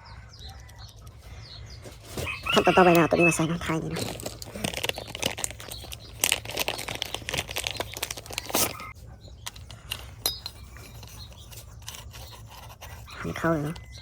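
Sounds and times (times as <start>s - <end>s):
rustling: 1.2s - 13.4s
small parts clicking and clinking: 3.8s - 13.2s.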